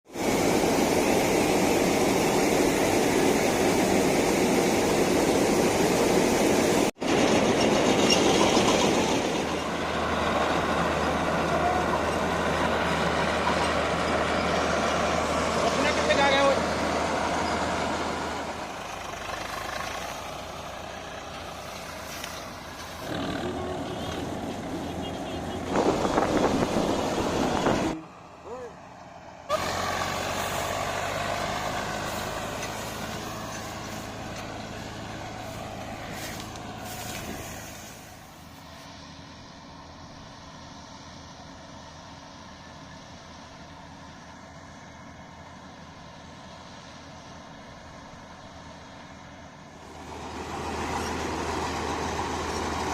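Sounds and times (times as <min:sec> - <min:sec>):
tractor diesel engine running: 0:00.1 - 0:52.9.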